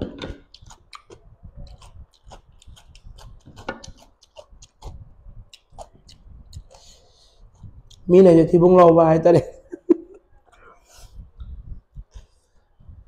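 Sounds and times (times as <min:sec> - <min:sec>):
close-miked chewing: 0:00.3 - 0:08.1.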